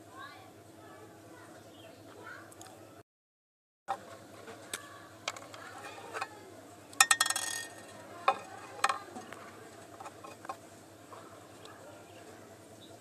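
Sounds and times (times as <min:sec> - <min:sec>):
small hard parts clicking: 0:04.7 - 0:10.6
clattering rattle: 0:07.0 - 0:09.4.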